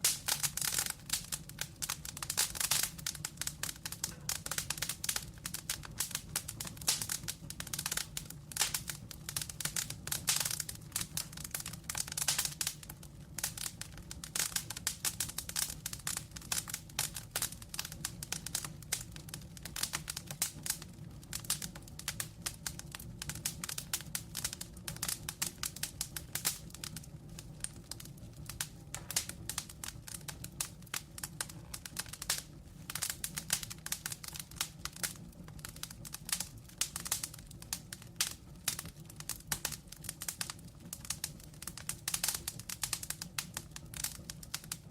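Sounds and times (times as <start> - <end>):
burning logs crackling: 0.0 - 44.9.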